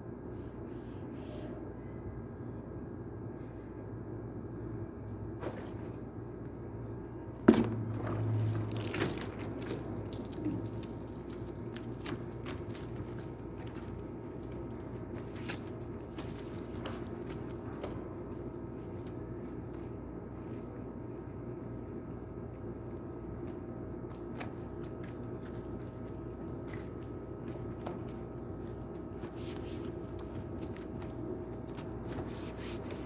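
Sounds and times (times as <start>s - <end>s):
steady low hum: 0.0s - 33.0s
water dripping and splashing: 5.7s - 33.0s
short rush of water: 7.6s - 12.4s.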